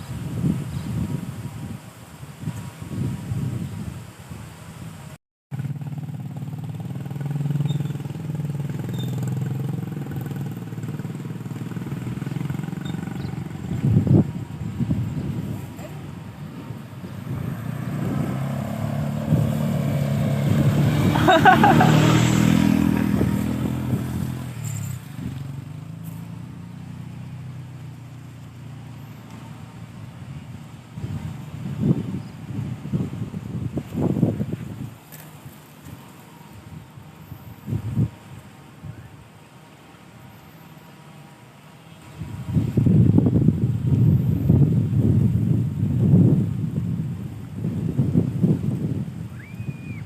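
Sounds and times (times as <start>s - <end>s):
vehicle engine running: 5.5s - 38.5s.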